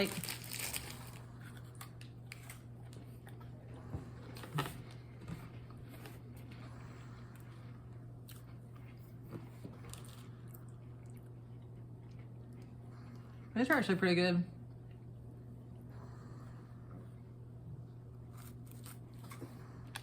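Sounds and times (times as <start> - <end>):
person chewing crunchy cookie: 0.0 - 13.5, 18.0 - 20.0
steady low hum: 0.0 - 20.0.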